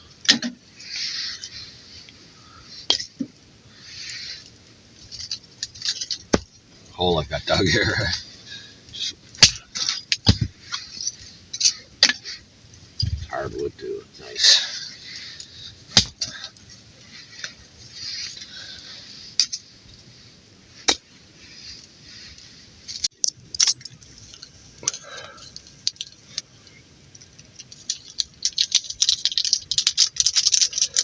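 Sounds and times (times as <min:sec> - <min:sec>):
fast crackly clicking: 0:22.9 - 0:31.0.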